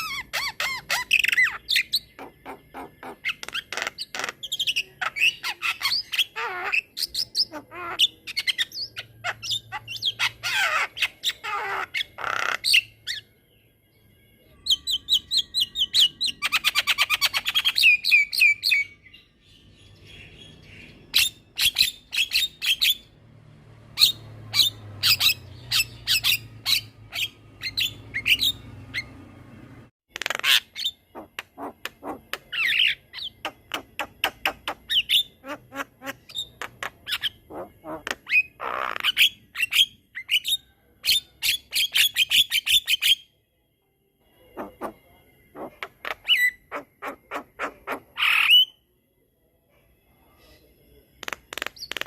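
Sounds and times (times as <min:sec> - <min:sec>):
harsh bird calls: 0:00.0 - 0:13.3, 0:23.8 - 0:29.3, 0:30.1 - 0:43.2, 0:44.5 - 0:48.8
bird singing clicks and whistles: 0:51.2 - 0:52.0.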